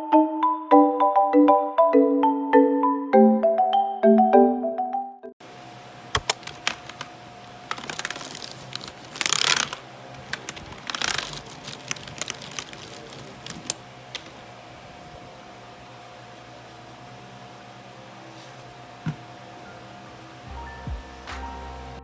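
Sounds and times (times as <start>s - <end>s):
typing on computer keyboard: 10.3s - 14.3s.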